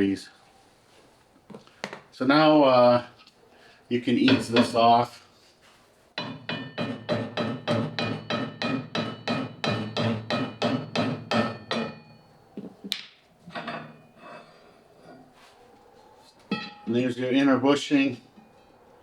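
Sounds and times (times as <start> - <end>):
hammer striking metal: 4.3 - 4.8, 6.2 - 12.2, 16.5 - 16.9.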